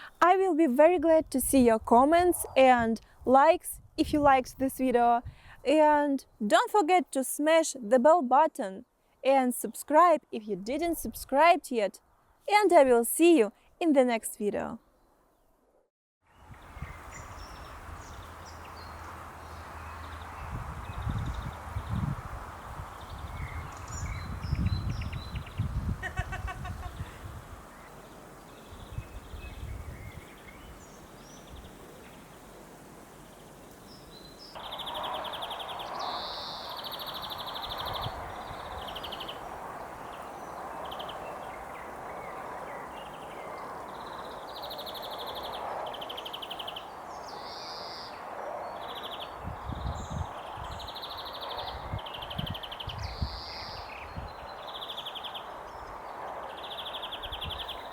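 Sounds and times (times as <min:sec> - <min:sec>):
songbirds trilling: 0:16.6 - 0:32.6, 0:33.2 - 0:57.9.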